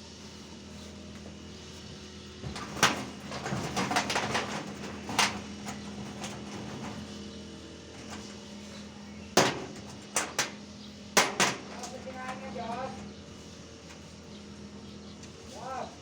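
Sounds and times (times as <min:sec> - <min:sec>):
steady low hum: 0:00.0 - 0:16.0
rattling clatter of tools: 0:02.4 - 0:07.3, 0:11.2 - 0:13.1.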